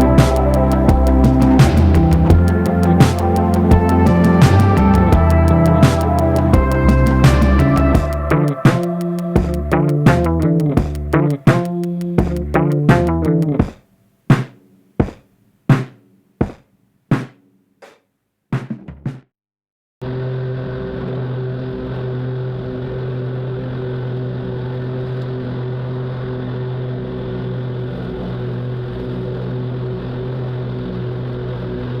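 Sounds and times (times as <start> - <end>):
struck musical notes: 0.0 - 16.6.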